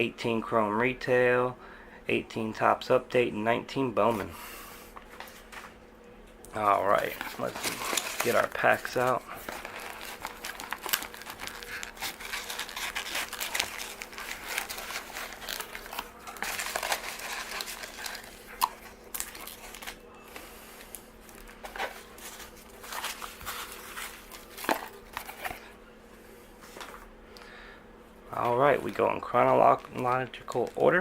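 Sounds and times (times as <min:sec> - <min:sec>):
wrappers crinkling and rustling: 0:06.6 - 0:25.8, 0:28.3 - 0:31.0.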